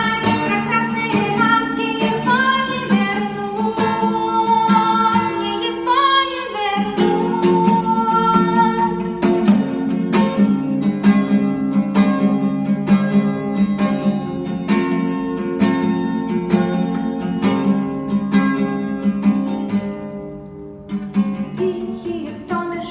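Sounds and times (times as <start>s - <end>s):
woman singing: 0.0s - 9.6s, 21.5s - 22.9s
acoustic guitar strumming: 0.0s - 22.9s.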